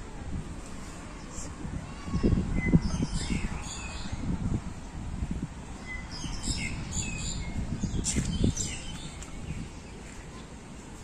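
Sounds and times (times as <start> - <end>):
birds chirping: 2.4 - 5.0, 5.8 - 10.6.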